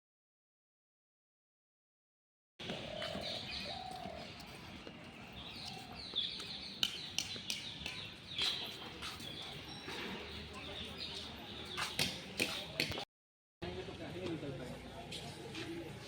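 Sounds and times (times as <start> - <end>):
birds chirping and calling: 2.6 - 13.0.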